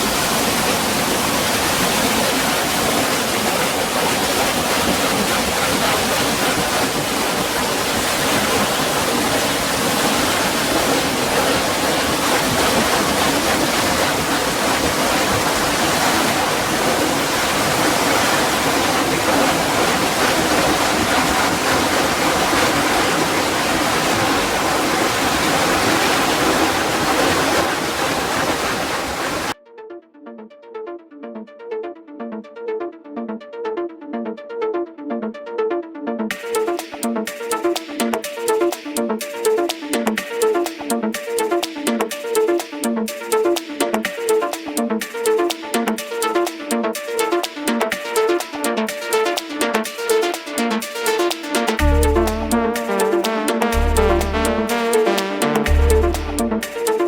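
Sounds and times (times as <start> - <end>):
water rushing and splashing: 0.0 - 29.6.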